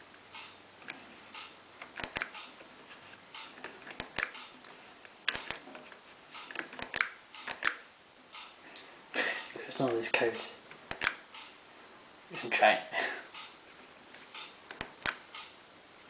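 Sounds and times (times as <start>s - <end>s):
push buttons clicking: 1.4s - 2.5s, 5.3s - 5.6s, 6.4s - 7.8s, 10.8s - 11.5s.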